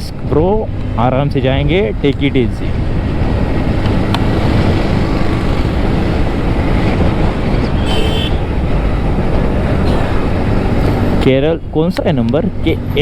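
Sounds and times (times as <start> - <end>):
wind and road rush: 0.0 - 13.0
vehicle horn beep: 7.6 - 8.5, 9.8 - 10.4.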